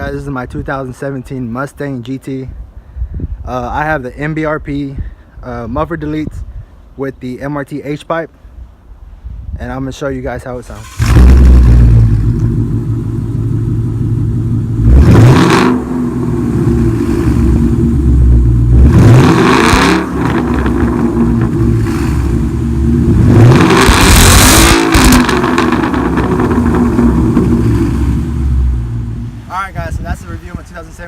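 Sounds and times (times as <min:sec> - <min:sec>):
car exhaust idling and revving: 0:10.8 - 0:29.5.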